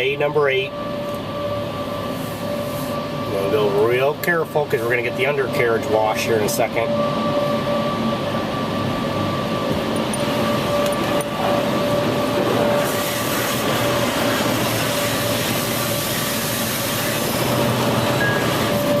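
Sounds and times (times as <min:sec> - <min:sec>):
faint steady whine: 0:00.0 - 0:19.0
water jets spraying underside: 0:12.8 - 0:17.9.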